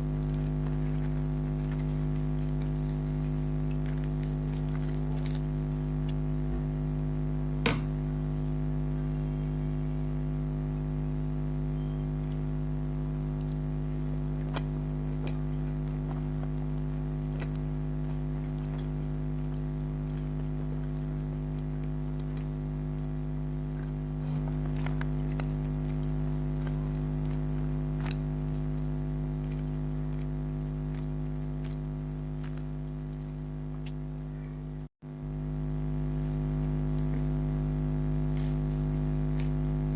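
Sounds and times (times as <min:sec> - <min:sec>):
chewing smacks: 0:00.0 - 0:05.4, 0:13.1 - 0:34.0
low electrical hum: 0:00.0 - 0:39.9.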